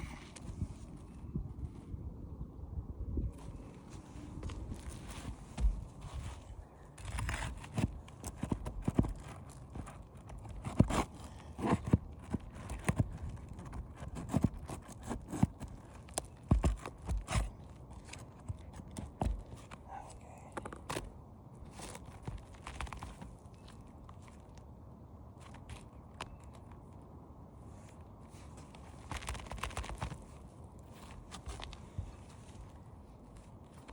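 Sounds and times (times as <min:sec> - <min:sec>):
knocks and scrapes of shingles: 0:03.4 - 0:24.7, 0:27.8 - 0:33.9
footsteps on shingle roof: 0:03.5 - 0:19.8.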